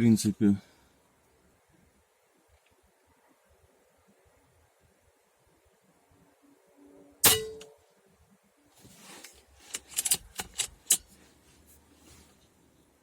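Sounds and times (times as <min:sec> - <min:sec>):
air rifle shot: 0:07.2 - 0:07.7.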